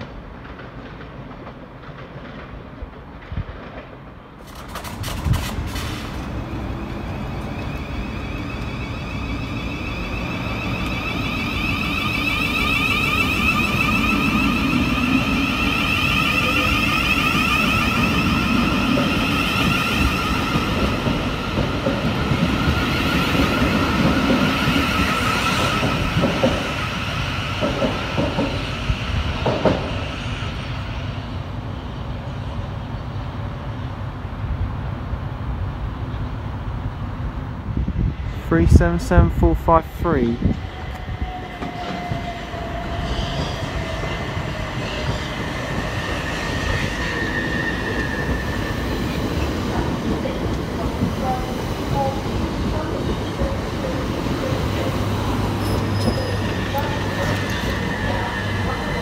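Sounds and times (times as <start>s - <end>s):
train low rumble: 0.0s - 59.0s
wheels clicking over rail joints: 3.2s - 6.8s
traction motor whine: 6.2s - 20.7s.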